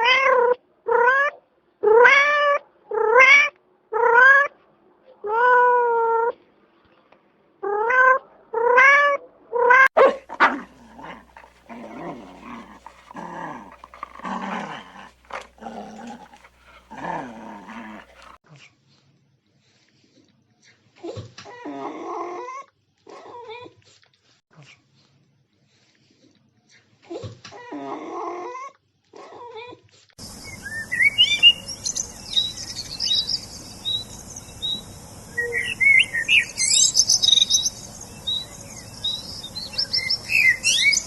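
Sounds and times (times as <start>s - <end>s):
low rough animal calls: 10.2s - 18.4s.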